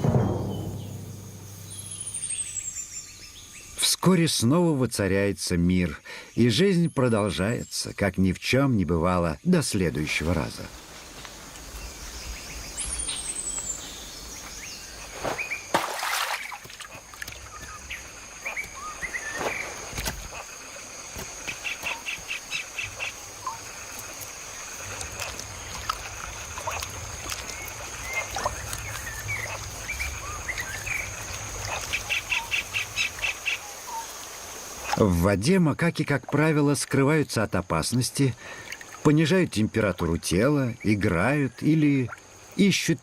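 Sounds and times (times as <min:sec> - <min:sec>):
sharp knock: 0:00.0 - 0:02.4
high insect whine: 0:00.0 - 0:03.9, 0:09.9 - 0:35.7
runs of repeated bird calls: 0:11.8 - 0:35.0.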